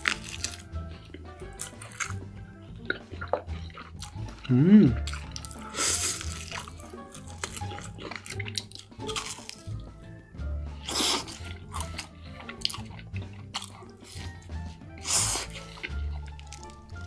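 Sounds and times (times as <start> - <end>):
wet chewing clicks: 0.0 - 9.9, 10.8 - 17.0
background music: 0.0 - 17.0
noisy bite or slurp: 2.9 - 9.6, 10.8 - 12.8, 15.0 - 16.7.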